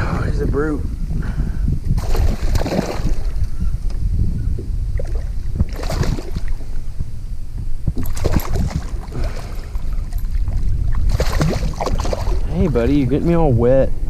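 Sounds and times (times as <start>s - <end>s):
wind on microphone: 0.0s - 14.0s
fish thrashing and splashing: 2.0s - 3.4s, 5.0s - 6.6s, 8.0s - 12.6s.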